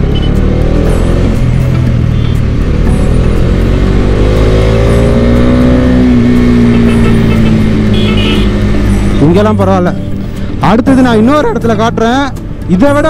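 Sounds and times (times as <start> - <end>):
motorcycle engine running: 0.0 - 10.0
wind and road noise: 0.0 - 13.0.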